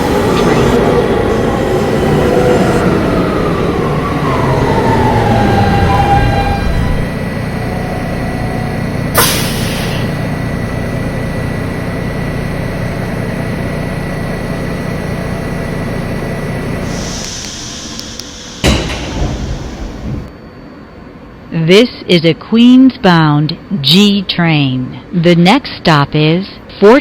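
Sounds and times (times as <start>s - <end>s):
train equipment rumble: 0.0s - 20.4s
short air hiss: 9.2s - 10.2s
sharp bang: 18.4s - 20.3s.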